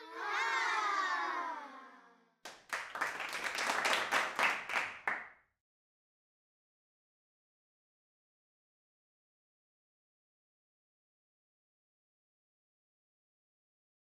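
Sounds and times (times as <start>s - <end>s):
applause: 2.4s - 5.4s.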